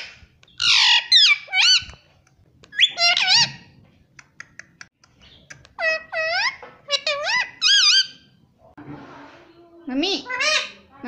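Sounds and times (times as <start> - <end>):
parrot shrill calls: 0.6 - 1.9.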